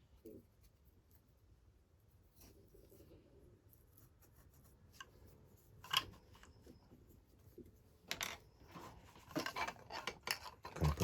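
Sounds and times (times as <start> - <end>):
plastic rubbing and scraping: 8.6 - 11.0.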